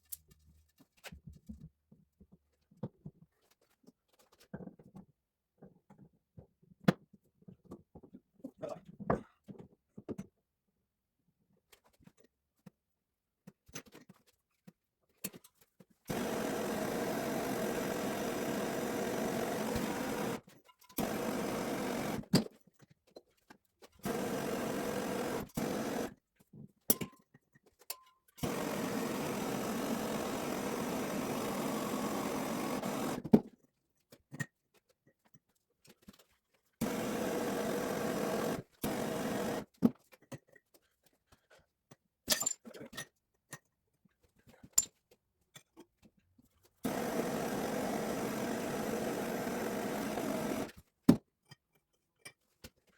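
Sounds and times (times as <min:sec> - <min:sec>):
electric power tool motor running: 0:16.1 - 0:20.4, 0:21.0 - 0:22.3, 0:24.0 - 0:26.1, 0:28.4 - 0:33.3, 0:36.8 - 0:39.7, 0:46.8 - 0:50.7.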